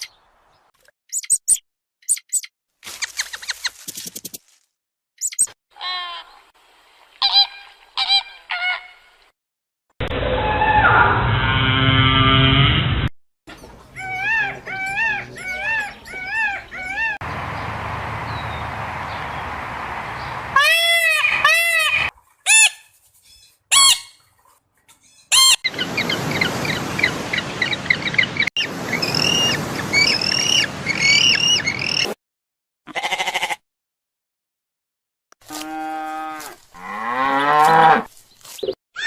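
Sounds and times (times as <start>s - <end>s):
high-pitched bird chirping: 1.1s - 2.5s, 5.2s - 5.5s
birds honking: 13.6s - 22.8s.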